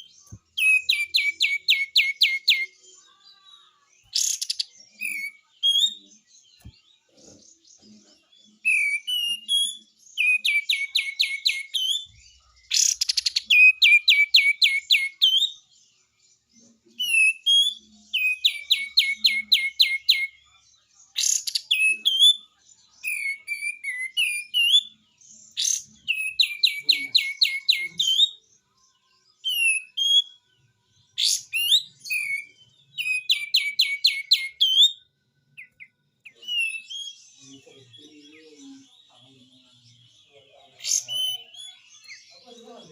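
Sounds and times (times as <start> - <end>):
bird chattering song: 0.0 - 42.9
sharp bird calls: 4.0 - 6.0, 8.7 - 15.5, 21.1 - 28.4, 31.1 - 42.9.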